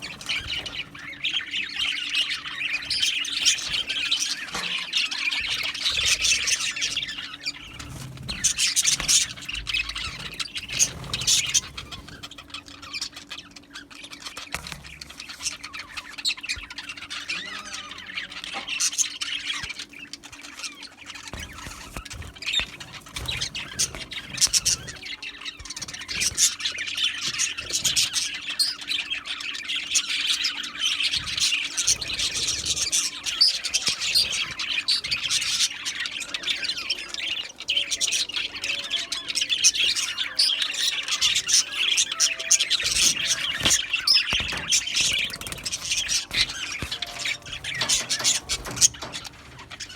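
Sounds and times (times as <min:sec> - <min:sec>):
budgerigars chattering: 0:00.0 - 0:49.9.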